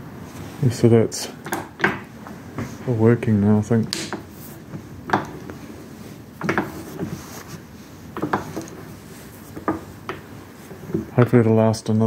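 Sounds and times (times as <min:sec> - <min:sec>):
metal clunks and knocks: 0:06.4 - 0:07.2, 0:08.2 - 0:08.8.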